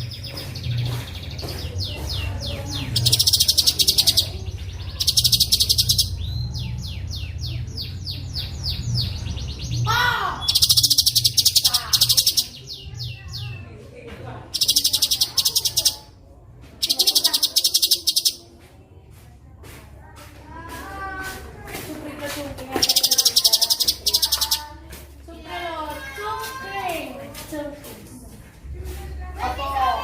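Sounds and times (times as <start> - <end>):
songbird rolling trills: 14.6 - 16.0, 22.8 - 24.6.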